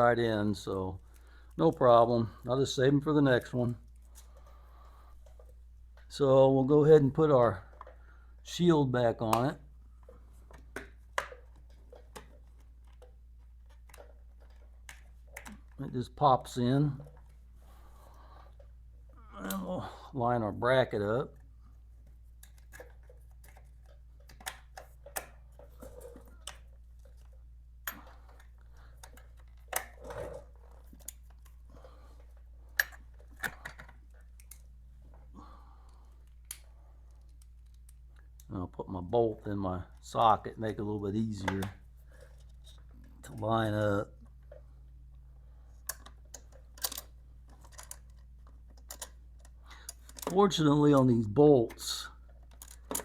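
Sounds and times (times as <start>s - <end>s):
metal hardware clicks and clinks: 27.8s - 31.5s, 32.7s - 34.6s, 45.9s - 51.1s.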